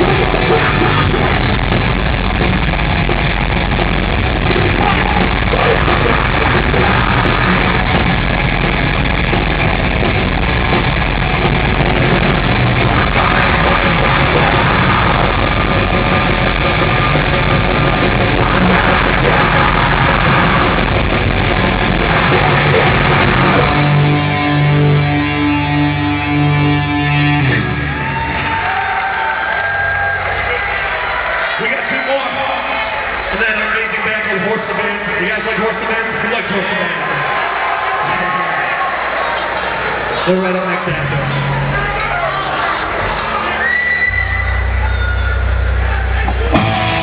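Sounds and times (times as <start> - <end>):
yelled vocals: 0.0 - 31.4
heavy rock band playing live: 0.0 - 31.5, 41.0 - 47.0.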